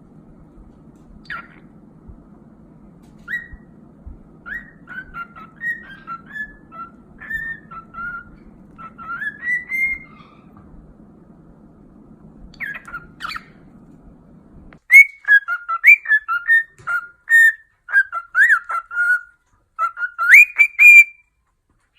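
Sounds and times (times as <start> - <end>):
parrot whistling: 3.2 - 3.7, 4.4 - 10.5, 12.6 - 13.6, 14.9 - 21.3.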